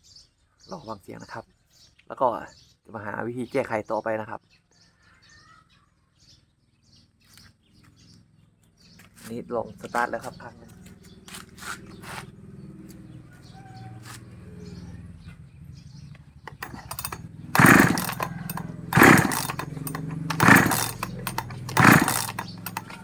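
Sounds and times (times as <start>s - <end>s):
chainsaw engine idling and revving: 9.6s - 23.0s.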